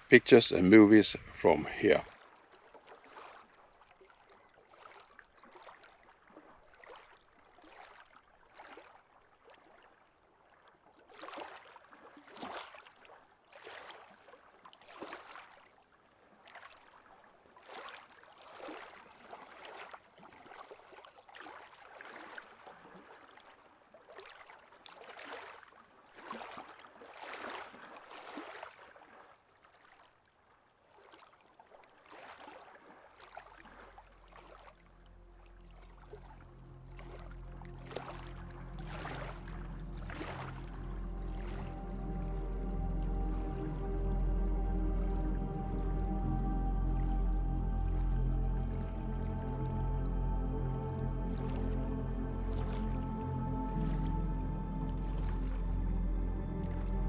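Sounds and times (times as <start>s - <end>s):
small waves washing ashore: 0.0s - 46.1s.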